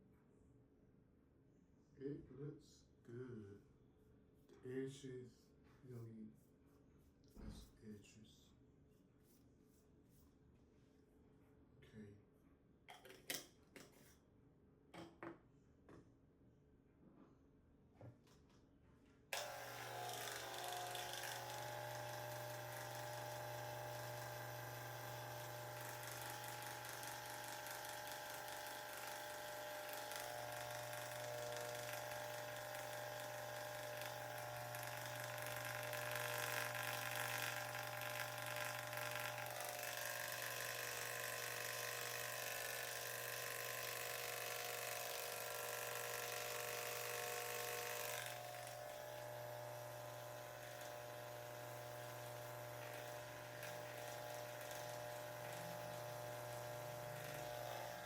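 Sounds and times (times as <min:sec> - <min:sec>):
electric hair clippers buzzing: 0:19.3 - 0:58.0.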